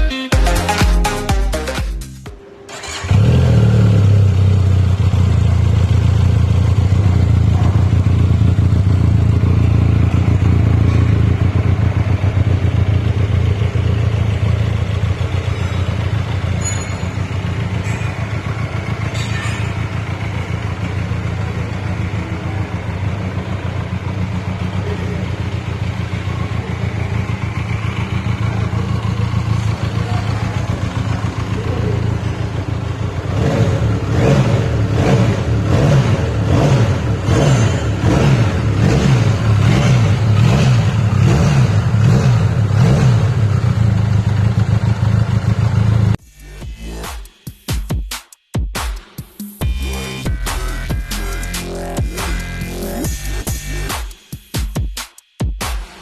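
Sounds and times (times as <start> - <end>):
motorcycle engine idling: 2.8 - 46.5.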